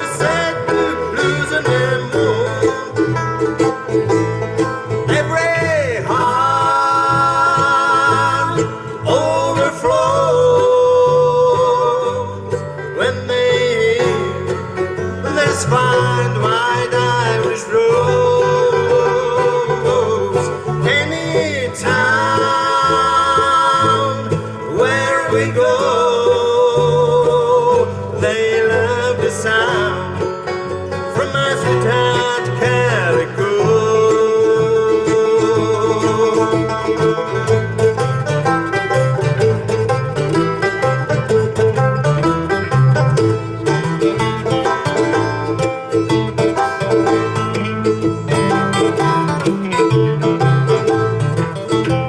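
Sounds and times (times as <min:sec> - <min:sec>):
acoustic guitar: 0:00.0 - 0:52.0
banjo: 0:00.0 - 0:52.0
sliding wavering lead melody: 0:33.6 - 0:52.0.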